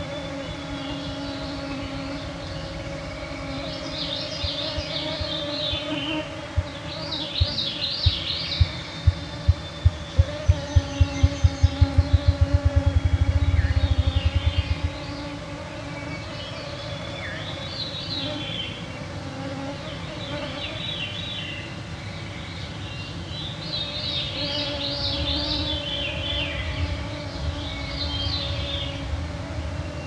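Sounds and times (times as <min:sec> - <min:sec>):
rapid low throbbing: 0:07.4 - 0:15.6.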